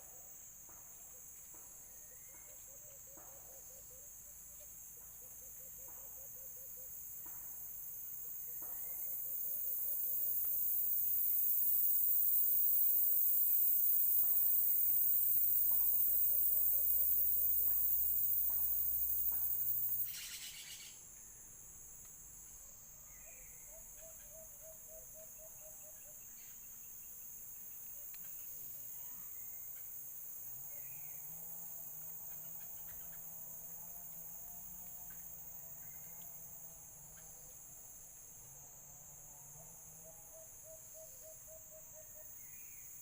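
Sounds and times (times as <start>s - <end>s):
high-pitched insect drone: 8.8s - 21.0s
short trilling bird calls: 20.0s - 21.0s.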